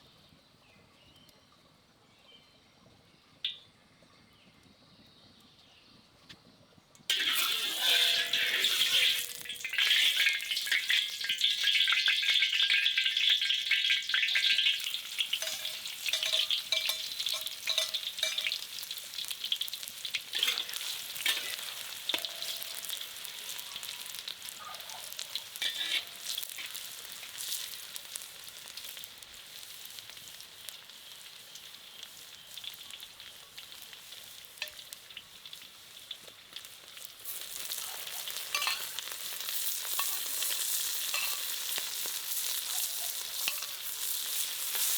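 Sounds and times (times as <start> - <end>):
food sizzling in a pan: 7.1 - 44.9
utensil clicking against pan: 14.1 - 24.0, 38.4 - 44.9.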